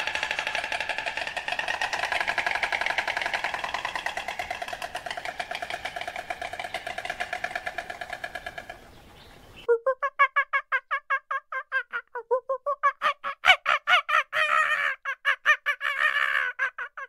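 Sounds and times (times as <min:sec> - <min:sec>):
stork clattering its bill: 0:00.0 - 0:09.2.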